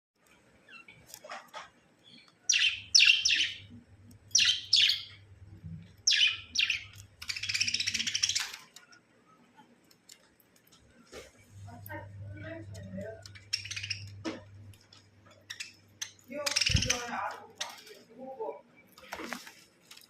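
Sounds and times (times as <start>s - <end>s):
budgerigar chirping: 2.5s - 3.7s, 4.3s - 5.2s, 6.0s - 8.5s, 13.4s - 14.2s.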